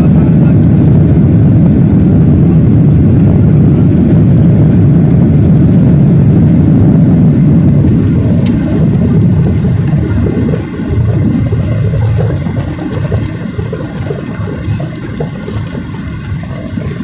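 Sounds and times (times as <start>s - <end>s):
jet engines rumbling in cabin: 0.0s - 17.0s.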